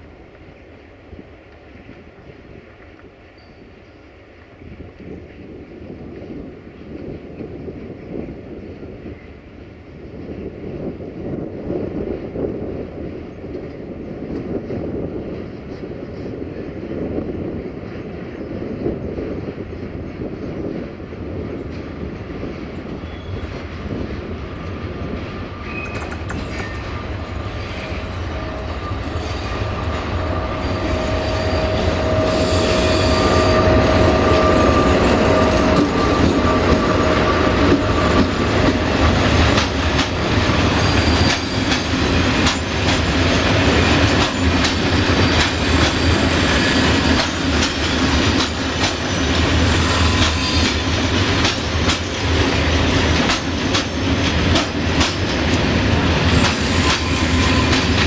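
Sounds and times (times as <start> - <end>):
diesel locomotive passing: 0.0 - 58.0
train rumble: 0.0 - 58.0
wheels clacking over rail joints: 21.6 - 32.4, 33.5 - 58.0
wheel squeal: 23.0 - 23.6, 56.4 - 57.9.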